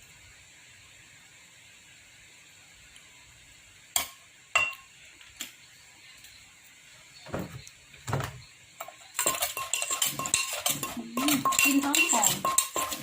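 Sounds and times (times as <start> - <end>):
pestle knocking in a mortar: 8.8 - 13.0.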